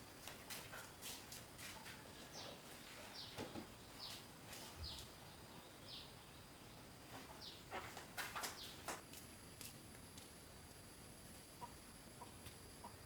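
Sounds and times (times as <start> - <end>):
bird chirping: 1.8 - 9.0.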